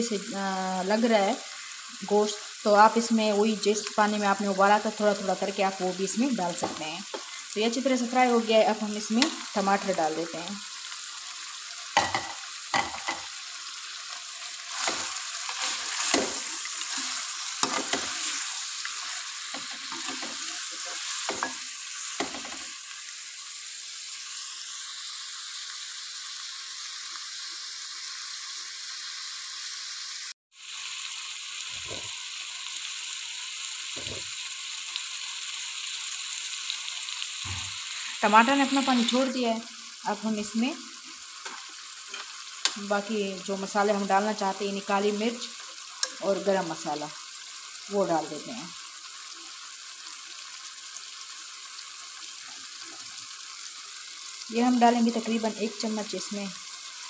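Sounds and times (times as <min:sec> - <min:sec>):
meat and tomatoes sizzling in oil: 0:00.0 - 0:57.0
metal spoon scraping pan: 0:14.7 - 0:21.6, 0:41.5 - 0:42.4.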